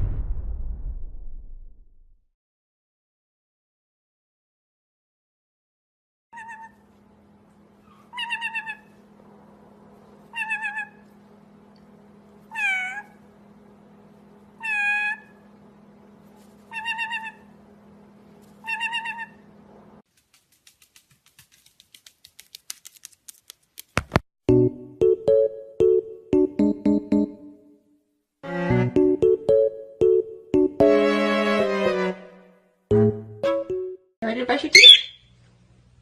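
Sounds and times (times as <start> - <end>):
parrot meowing: 6.4 - 6.9, 7.8 - 9.0, 10.3 - 11.1, 12.5 - 13.2, 14.6 - 15.4, 16.7 - 17.5, 18.6 - 19.4, 34.7 - 35.2
run of clicks: 20.1 - 24.2.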